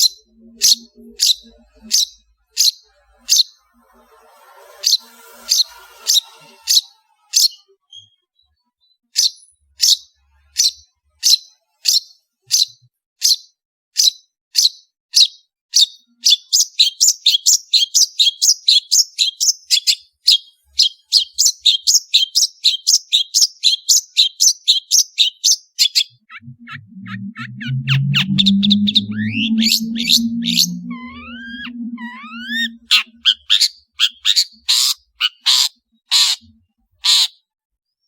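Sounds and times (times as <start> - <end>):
bird singing sharp high notes: 0.0 - 8.2, 20.8 - 35.6.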